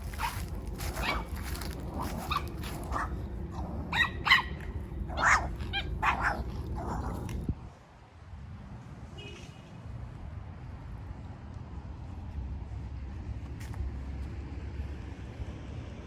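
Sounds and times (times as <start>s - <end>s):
low rumble: 0.0s - 7.8s
dog barking: 0.1s - 7.3s.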